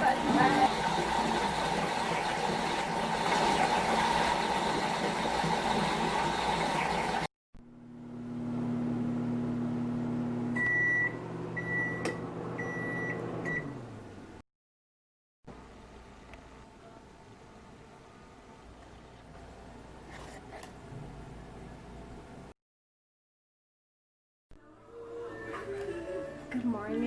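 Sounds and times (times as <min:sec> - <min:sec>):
appliance humming: 0:00.0 - 0:14.4.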